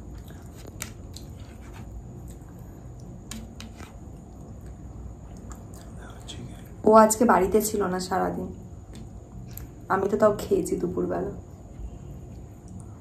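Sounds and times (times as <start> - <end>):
person chewing food: 0.0 - 6.2.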